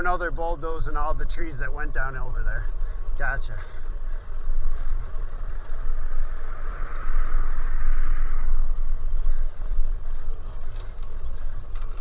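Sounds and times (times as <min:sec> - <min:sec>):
wind rumbling on microphone: 0:00.0 - 0:12.0
smooth rushing noise: 0:05.4 - 0:09.7.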